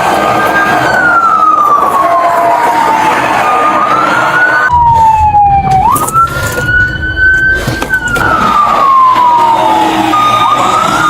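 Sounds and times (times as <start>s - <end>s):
emergency vehicle siren wailing: 0.0s - 11.0s
low rumble: 4.7s - 9.1s.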